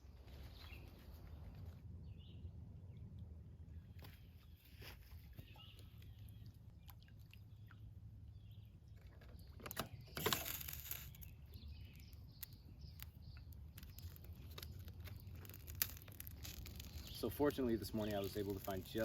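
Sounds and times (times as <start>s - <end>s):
small clicks: 9.0s - 19.0s.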